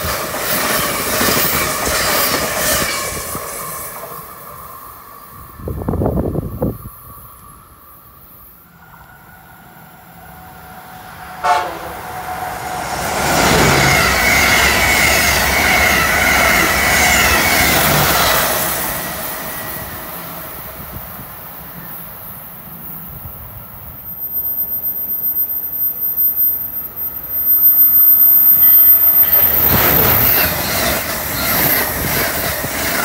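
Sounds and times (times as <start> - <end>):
train wheels rushing on rail: 0.0 - 33.0
train horn toot: 10.4 - 16.4.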